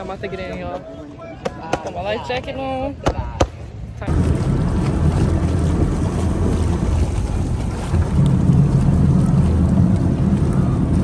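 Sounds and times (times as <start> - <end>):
boat motor rumbling: 1.9 - 11.0
wind buffeting microphone: 4.0 - 11.0.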